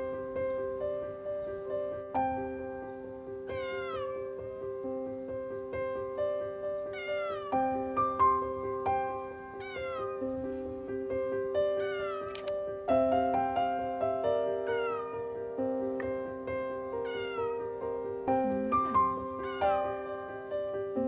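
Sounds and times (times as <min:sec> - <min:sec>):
background piano music: 0:00.0 - 0:21.0
cat meowing: 0:03.5 - 0:04.6, 0:06.8 - 0:08.4, 0:09.5 - 0:10.6, 0:11.8 - 0:12.5, 0:14.6 - 0:15.5, 0:17.0 - 0:20.6.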